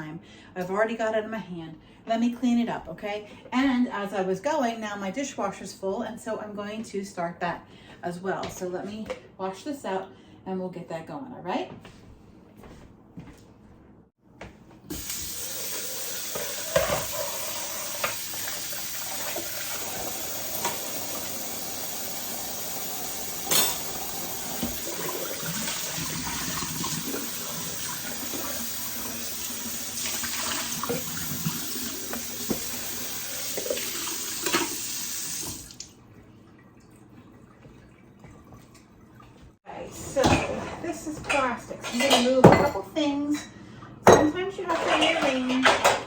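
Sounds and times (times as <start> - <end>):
dishes clinking against sink: 14.9 - 21.6, 22.5 - 28.6, 33.5 - 34.8, 40.1 - 46.0
tap water running into sink: 14.9 - 36.0.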